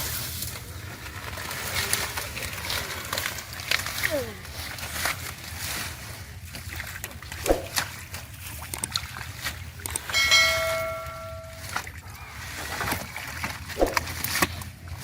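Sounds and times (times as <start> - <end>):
bell-like metallic ring: 10.1 - 11.9.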